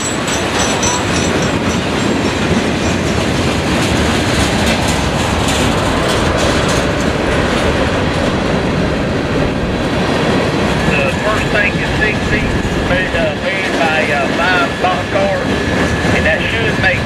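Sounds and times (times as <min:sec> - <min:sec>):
freight train wheels on rail: 0:00.0 - 0:17.0
wheels clacking over rail joints: 0:00.0 - 0:17.0.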